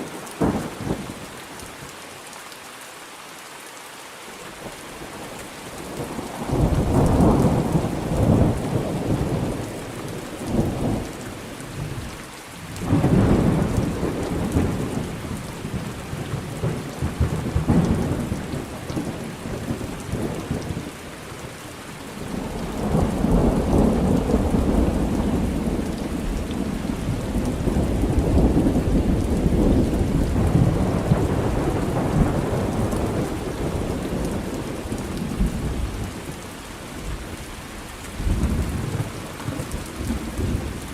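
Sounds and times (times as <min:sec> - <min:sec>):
steady rain: 0:00.0 - 0:40.9
thunder rolling: 0:22.3 - 0:35.8.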